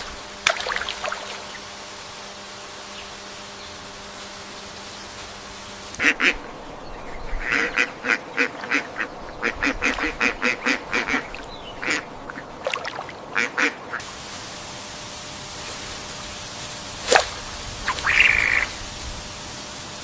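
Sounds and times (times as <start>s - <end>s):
bird giving harsh calls: 17.9s - 18.8s.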